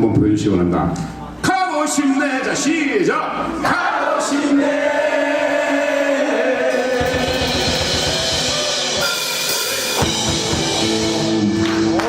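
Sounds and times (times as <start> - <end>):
rapid bass drum hits: 6.7 - 9.2, 9.8 - 11.4
crashing cymbals: 6.7 - 11.6.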